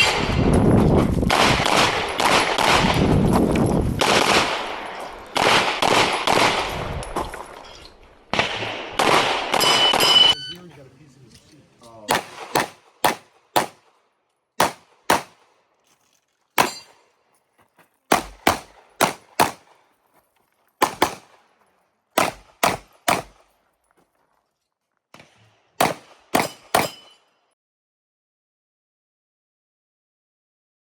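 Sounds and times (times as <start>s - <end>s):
rapid handgun fire: 1.3s - 3.1s, 4.0s - 4.8s, 5.4s - 6.8s, 8.3s - 10.0s, 12.1s - 13.9s, 14.6s - 15.4s, 18.1s - 19.6s, 20.8s - 21.4s, 22.2s - 23.4s, 25.8s - 26.9s.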